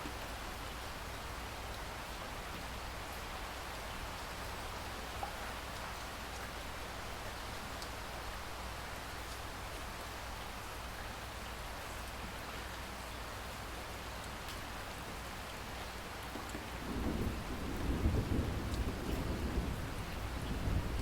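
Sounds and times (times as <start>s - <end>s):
steady rain falling: 0.0s - 21.0s
low rumble of thunder: 16.4s - 21.0s.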